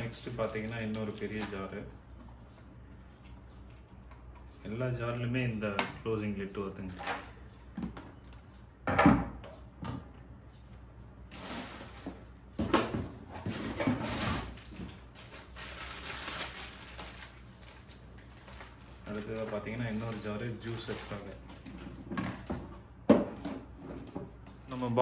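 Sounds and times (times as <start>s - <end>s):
packaging rustling: 0.0s - 1.6s, 13.8s - 22.5s.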